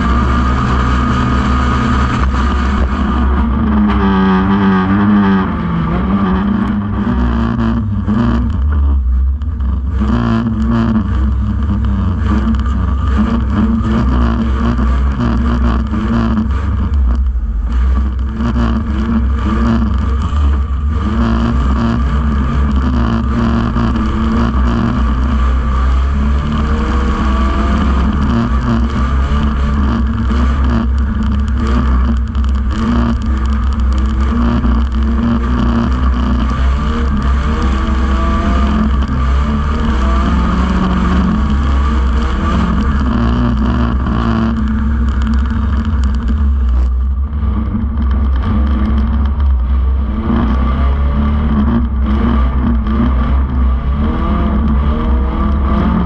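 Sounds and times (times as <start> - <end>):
racing car engine revving: 0.0 - 56.0.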